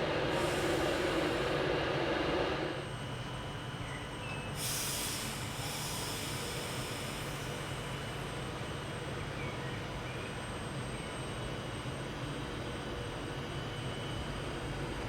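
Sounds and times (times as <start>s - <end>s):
train humming: 0.0s - 3.0s.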